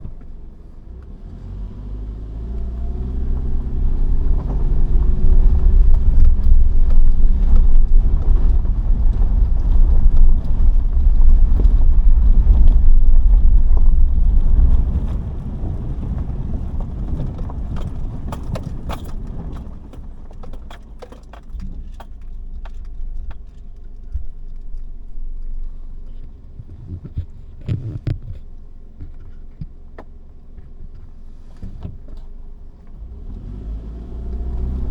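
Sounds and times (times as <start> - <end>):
car engine and road rumble: 0.0 - 34.9
knocks and rattles: 5.3 - 32.4.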